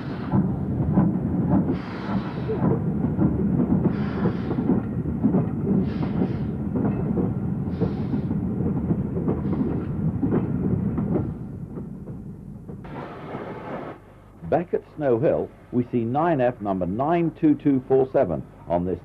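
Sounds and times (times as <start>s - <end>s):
train wheels rumbling and rattling: 0.0s - 19.0s
steam exhaust hiss: 1.6s - 2.7s, 3.8s - 4.8s, 5.7s - 6.6s, 7.6s - 8.4s, 12.9s - 15.8s.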